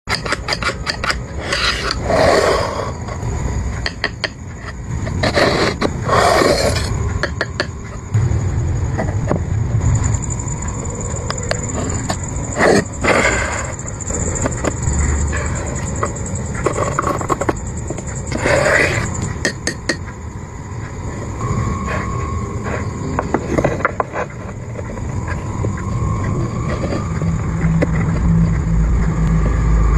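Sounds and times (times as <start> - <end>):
hand tools clicking on wood: 0.1 - 2.0
tool scraping wood: 0.1 - 2.7
faint steady high tone: 0.6 - 29.9.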